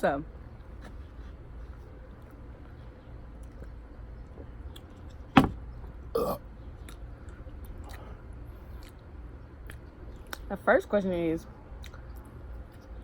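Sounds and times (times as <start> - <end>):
low steady hum: 0.0 - 13.0
person throat noises: 6.2 - 6.4.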